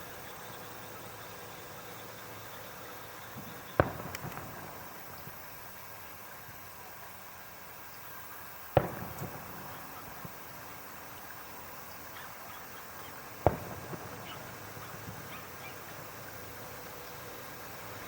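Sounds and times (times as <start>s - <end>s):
fireworks bangs: 3.2s - 6.6s, 8.7s - 18.0s.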